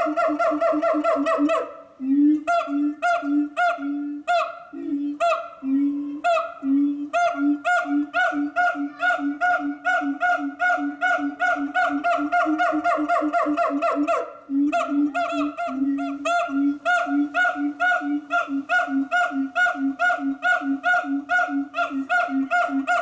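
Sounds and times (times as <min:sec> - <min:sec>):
ape hooting and barking: 0:07.7 - 0:23.0.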